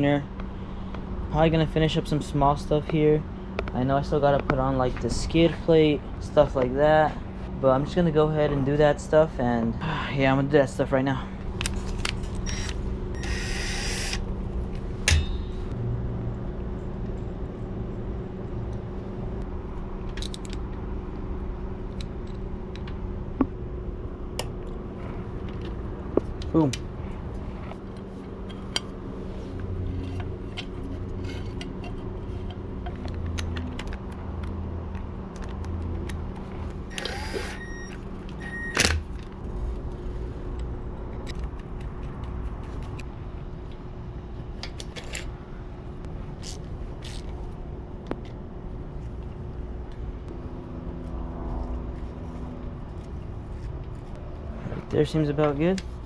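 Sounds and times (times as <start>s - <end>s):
steady low hum: 0.0s - 56.0s
tools and parts clicking: 20.1s - 20.6s, 46.4s - 47.4s.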